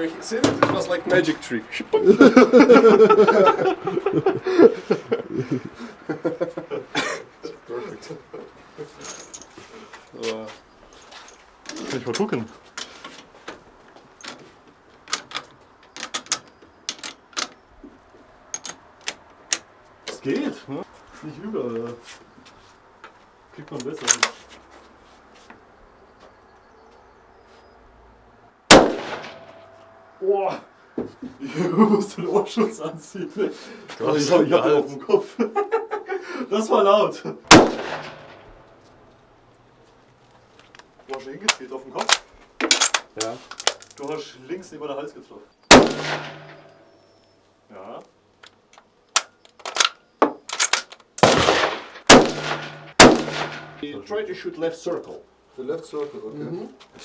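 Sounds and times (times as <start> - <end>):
gunshots echoing: 28.7 - 29.8, 37.5 - 38.5, 45.7 - 46.7, 51.2 - 53.8
rifle shot: 28.7 - 29.8, 37.5 - 38.5, 45.7 - 46.6, 51.2 - 53.8.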